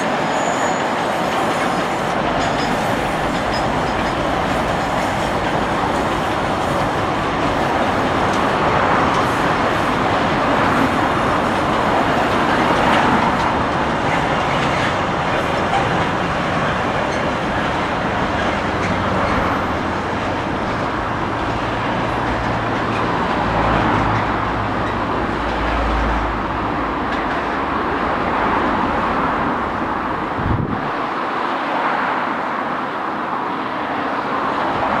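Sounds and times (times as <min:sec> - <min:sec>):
freight wagons rolling on rails: 0:00.0 - 0:28.0.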